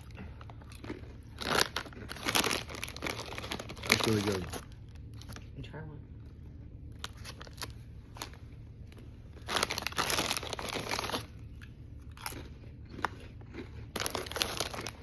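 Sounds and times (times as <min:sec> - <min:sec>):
chips being crunched: 0:12.2 - 0:15.0.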